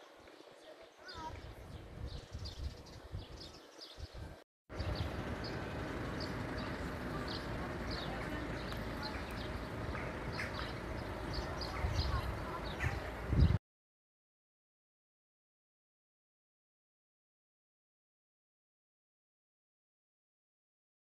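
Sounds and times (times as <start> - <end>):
small birds chirping: 0.0 - 13.6.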